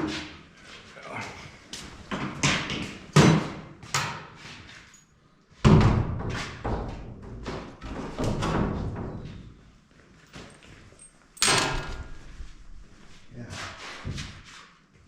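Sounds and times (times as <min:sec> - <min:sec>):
objects knocking and thudding: 0:02.1 - 0:04.2, 0:05.6 - 0:09.2, 0:11.4 - 0:12.3.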